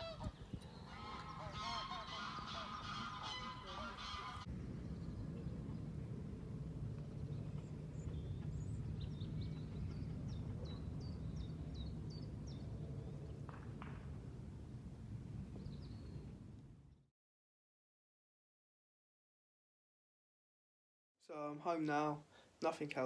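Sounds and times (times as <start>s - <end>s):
low wind rumble: 0.0s - 17.1s.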